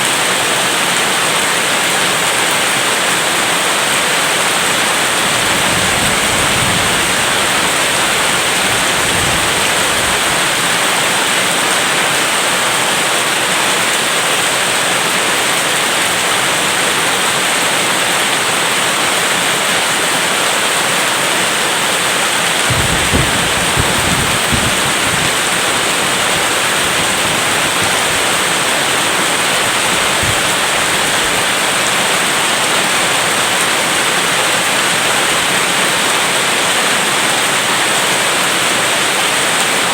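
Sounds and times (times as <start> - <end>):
steady rain hissing: 0.0 - 39.9
low thunder rumble: 4.5 - 11.4, 22.6 - 31.9.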